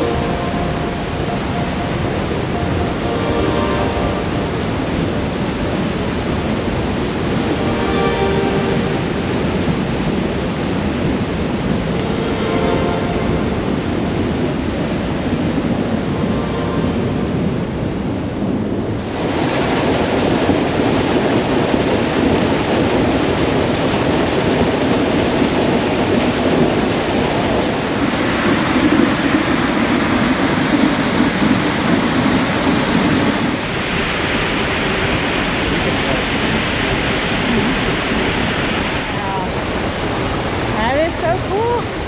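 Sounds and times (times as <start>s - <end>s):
waterfall rushing: 0.0s - 18.5s.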